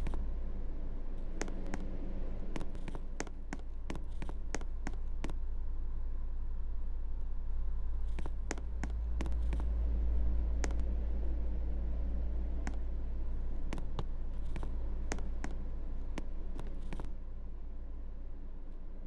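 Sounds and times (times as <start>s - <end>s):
clicks and ticks: 1.4s - 1.9s.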